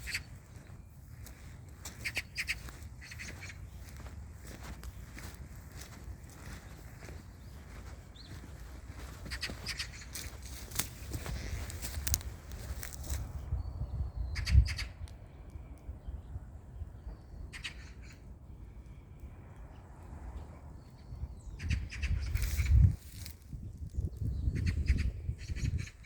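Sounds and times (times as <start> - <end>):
wind rumble on microphone: 0.0 - 26.0.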